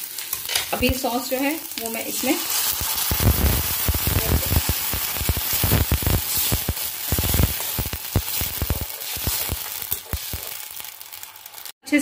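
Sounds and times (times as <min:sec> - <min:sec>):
sauce sizzling in hot oil: 0:00.0 - 0:11.8
spatula stirring in pan: 0:02.4 - 0:11.7.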